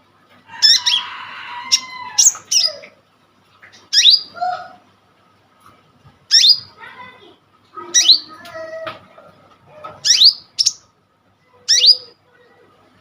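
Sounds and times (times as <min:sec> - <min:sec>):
sunbird singing: 0:06.3 - 0:06.7, 0:07.9 - 0:08.4, 0:10.0 - 0:10.9, 0:11.7 - 0:12.2.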